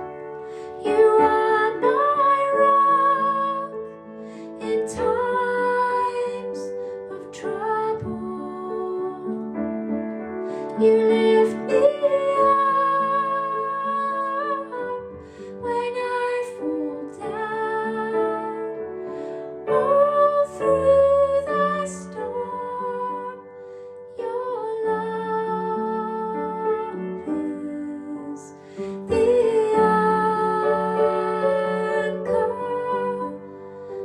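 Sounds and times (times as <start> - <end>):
soft instrumental accompaniment: 0.0 - 34.0
woman singing slow song: 0.6 - 9.6, 10.6 - 19.0, 19.6 - 23.5, 24.2 - 34.0.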